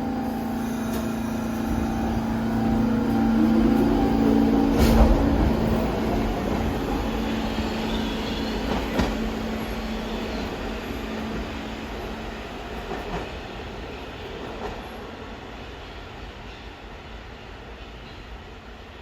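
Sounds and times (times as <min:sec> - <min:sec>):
subway train passing: 0:00.0 - 0:19.0.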